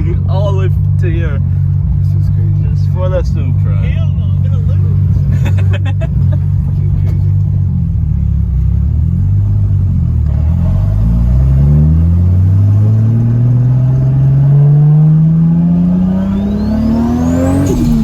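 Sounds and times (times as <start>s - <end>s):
car engine accelerating hard: 0.0s - 18.0s
turbo whine: 15.2s - 18.0s.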